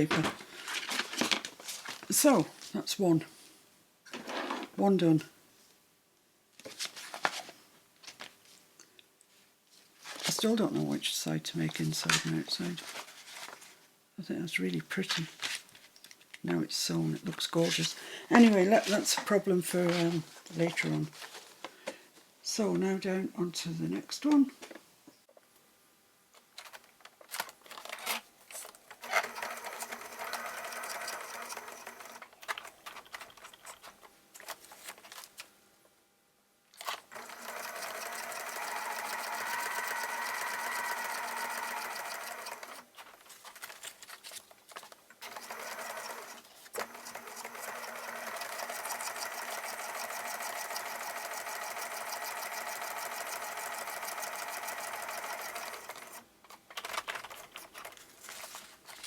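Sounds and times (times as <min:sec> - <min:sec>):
sewing machine stitching paper: 0:28.9 - 0:33.8, 0:36.8 - 0:43.6, 0:45.2 - 0:58.0.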